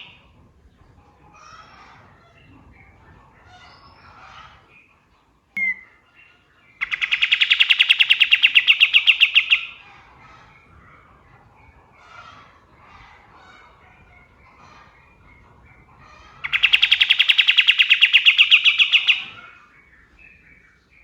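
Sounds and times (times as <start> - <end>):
soft bird chirping: 5.6 - 21.0.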